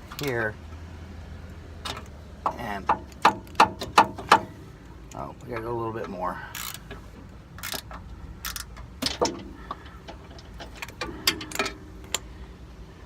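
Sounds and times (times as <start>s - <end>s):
ratchet wrench clicking: 6.5s - 6.9s, 7.6s - 8.8s.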